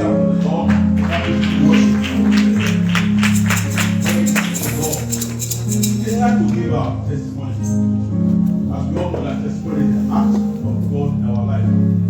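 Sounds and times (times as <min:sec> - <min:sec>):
bass and keyboard chords: 0:00.0 - 0:12.0
shaken percussion beat: 0:01.0 - 0:06.4.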